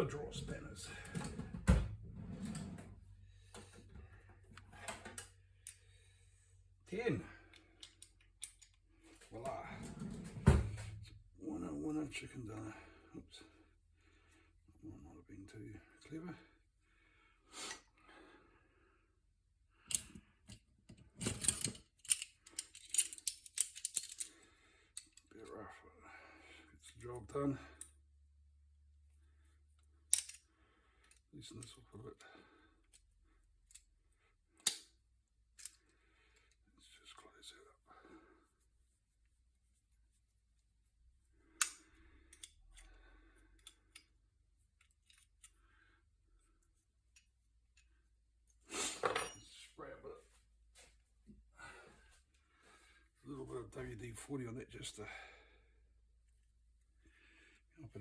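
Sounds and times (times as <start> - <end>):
metal tools clicking and clinking: 7.8 - 8.8, 21.2 - 24.3, 48.9 - 49.6.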